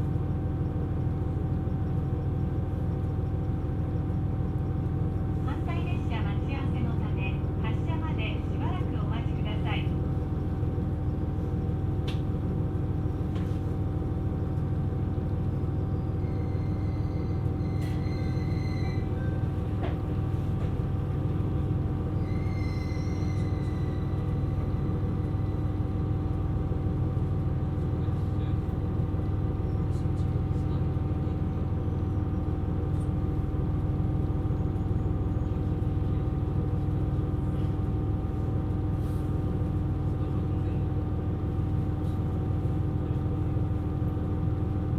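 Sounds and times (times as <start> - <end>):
diesel engine drone: 0.0 - 44.9
wheels rumbling on track: 0.0 - 44.9
faint high squeaks: 16.1 - 19.5, 22.2 - 24.5.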